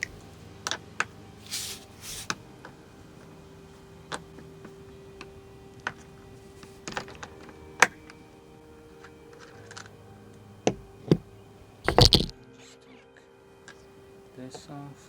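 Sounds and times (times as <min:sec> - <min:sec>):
skate tool clicks and knocks: 0:11.9 - 0:12.3.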